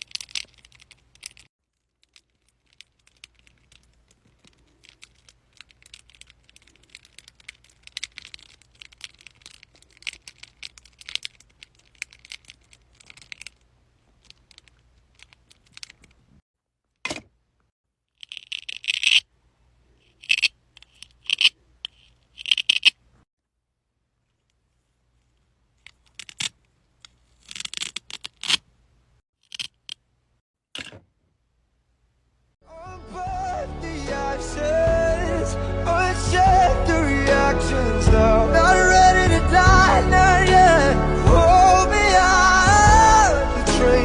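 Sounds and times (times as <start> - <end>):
material crinkling and crackling: 0.0 - 16.4.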